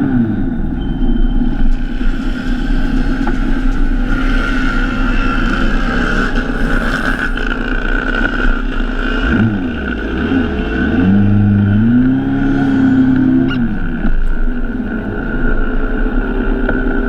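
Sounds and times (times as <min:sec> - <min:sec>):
motorcycle engine running: 0:01.4 - 0:17.0.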